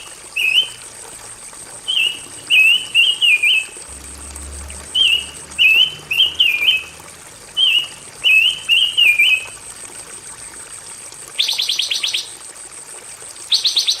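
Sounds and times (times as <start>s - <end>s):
songbird chirped whistles: 7.6s - 9.5s.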